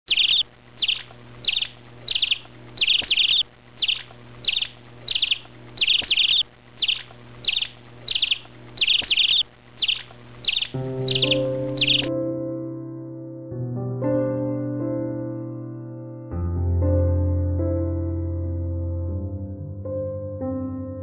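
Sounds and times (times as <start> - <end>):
bird chirping: 0.0 - 12.1
faint low hum: 0.1 - 12.1.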